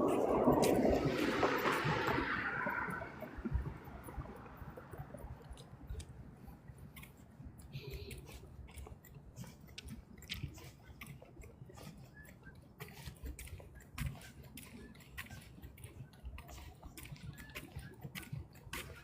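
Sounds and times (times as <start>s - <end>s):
footsteps crunching on trail: 5.1s - 19.0s.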